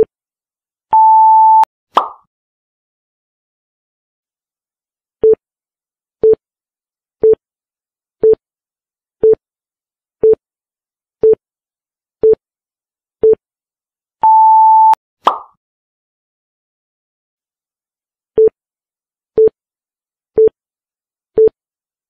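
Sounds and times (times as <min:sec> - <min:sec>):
short pop: 0:02.0 - 0:02.2, 0:15.2 - 0:15.6.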